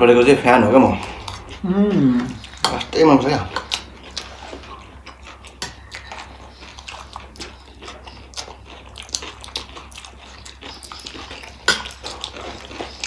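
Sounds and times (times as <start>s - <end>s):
people chewing with wet clicks: 0.3s - 13.0s.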